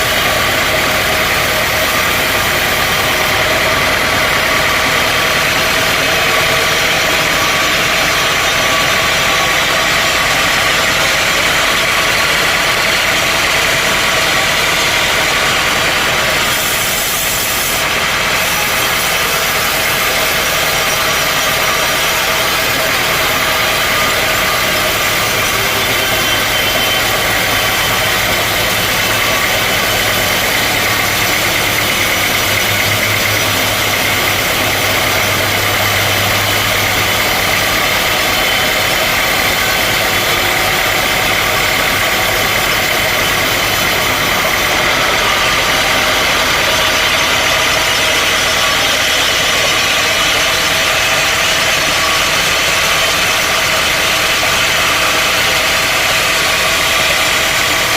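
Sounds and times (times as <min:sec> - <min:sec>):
sawmill machinery drone: 0:00.0 - 0:57.9.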